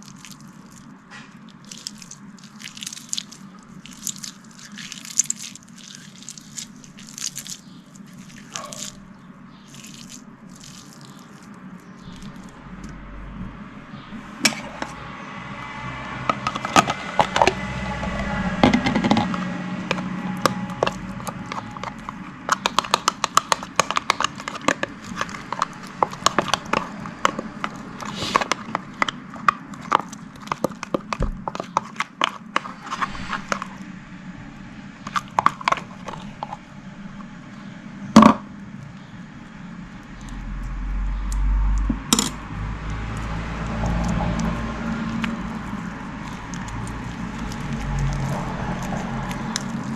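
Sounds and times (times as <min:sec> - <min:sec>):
slime squeezed by hand: 0:01.6 - 0:09.0, 0:28.0 - 0:28.6
low rumble: 0:11.6 - 0:22.5, 0:32.6 - 0:49.9.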